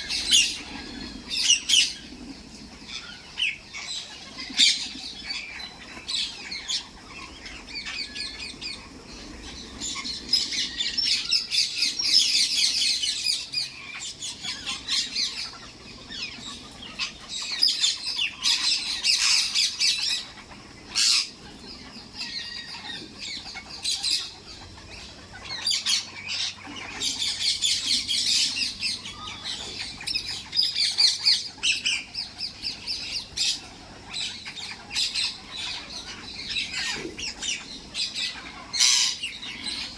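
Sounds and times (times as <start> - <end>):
parrots chattering and squawking: 0.0 - 39.9.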